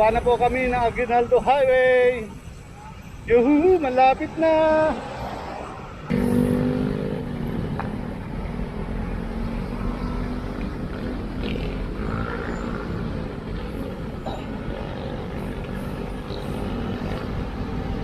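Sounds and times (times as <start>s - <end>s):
road and wind rumble: 0.0s - 18.0s
motor vehicle engine hum: 4.8s - 18.0s.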